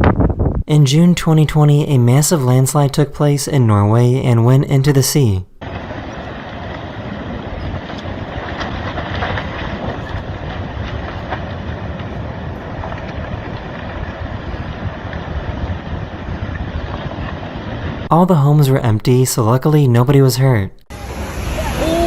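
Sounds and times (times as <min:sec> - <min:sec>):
wind on microphone: 0:00.0 - 0:00.7, 0:05.6 - 0:18.1.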